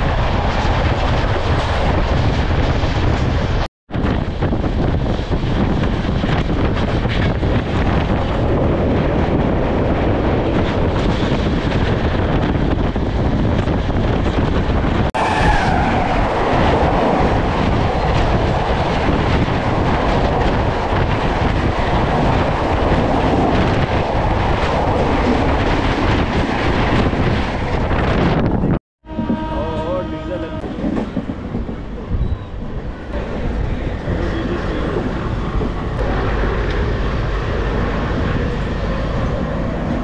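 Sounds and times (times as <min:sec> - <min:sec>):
wind rushing: 0:00.0 - 0:29.6, 0:30.2 - 0:40.0
passenger train rushing past: 0:00.0 - 0:40.0.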